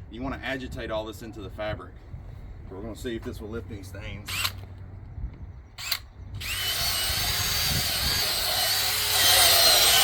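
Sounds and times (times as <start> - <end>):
drill motor whine: 5.8 - 10.0.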